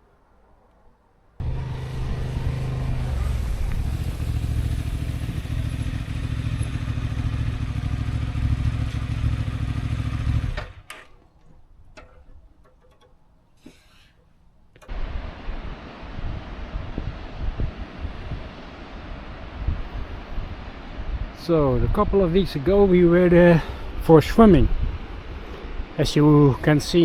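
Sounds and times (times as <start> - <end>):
motorcycle engine running: 1.4 - 10.8.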